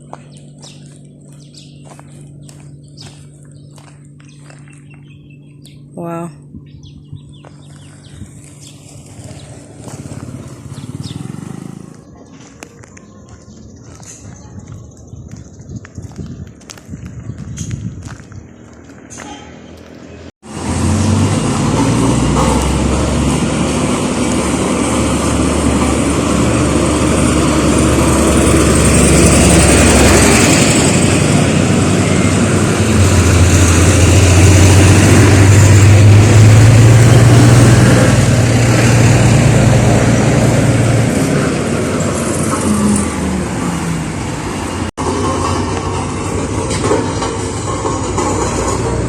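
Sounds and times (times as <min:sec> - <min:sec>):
heavy machinery engine droning: 0:00.0 - 0:16.2, 0:17.1 - 0:49.0
road noise: 0:00.0 - 0:49.0.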